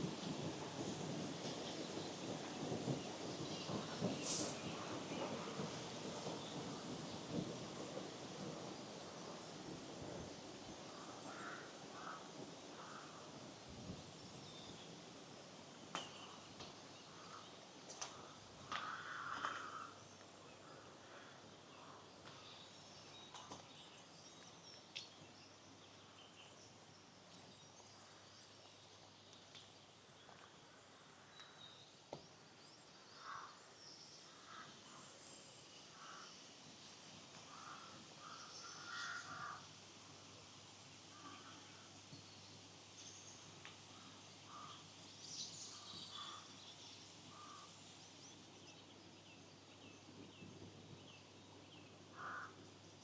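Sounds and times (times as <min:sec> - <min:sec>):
faint clicks: 0:17.9 - 0:20.3
faint birds calling: 0:51.5 - 0:52.6.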